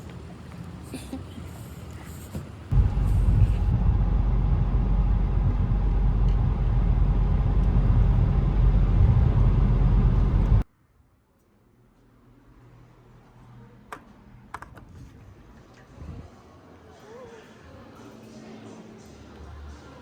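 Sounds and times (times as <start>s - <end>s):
car engine rumble: 2.5s - 10.6s.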